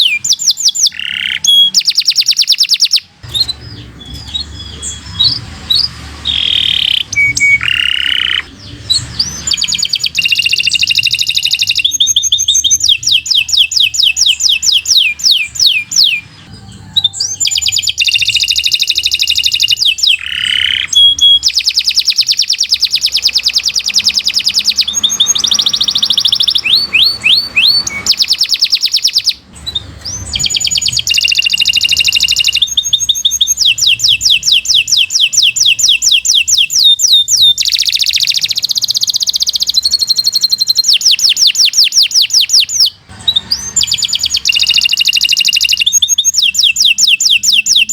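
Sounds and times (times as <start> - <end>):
canary singing trills: 0.0 - 47.9.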